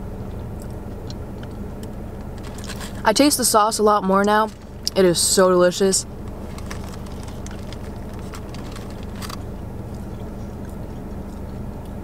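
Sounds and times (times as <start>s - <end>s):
steady low hum: 0.0s - 12.0s
chewing crispy food: 0.2s - 3.1s, 6.2s - 12.0s.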